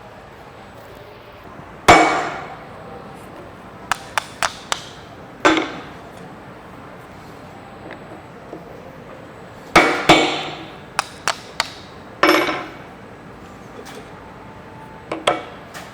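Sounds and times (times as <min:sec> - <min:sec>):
hammer striking hole punch: 0:01.9 - 0:02.6, 0:03.9 - 0:06.0, 0:09.8 - 0:12.8
light hammer taps: 0:03.9 - 0:05.9, 0:09.8 - 0:12.7.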